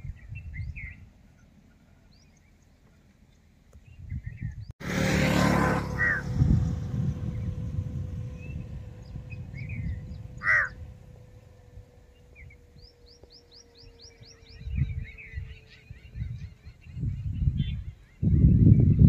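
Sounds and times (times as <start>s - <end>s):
low rumble: 4.2s - 19.0s
birds calling: 5.9s - 19.0s
crow cawing: 6.0s - 6.2s, 10.4s - 10.8s.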